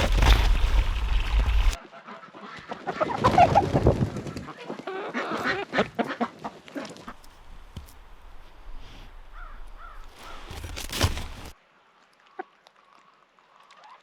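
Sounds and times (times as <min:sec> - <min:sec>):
poultry clucking: 0:04.4 - 0:07.2.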